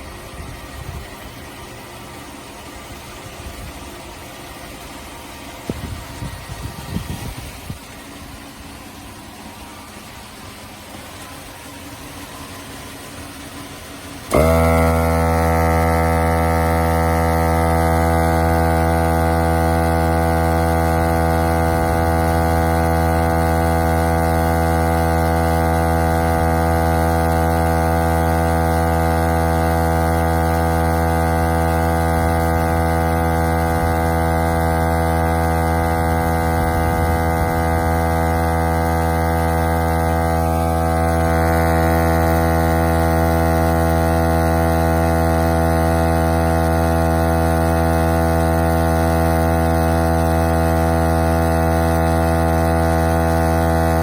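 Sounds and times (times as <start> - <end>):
tire inflator motor humming: 0.0 - 54.0.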